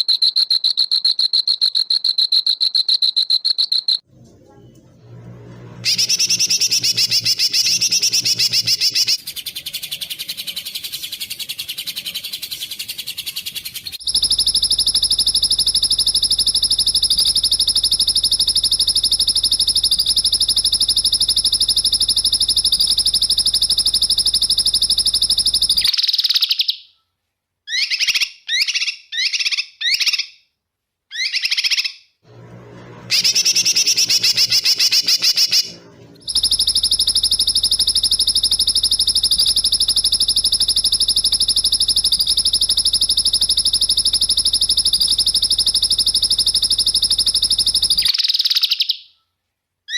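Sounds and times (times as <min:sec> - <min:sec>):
songbird buzzy trills: 0:05.8 - 0:26.7, 0:33.1 - 0:49.1.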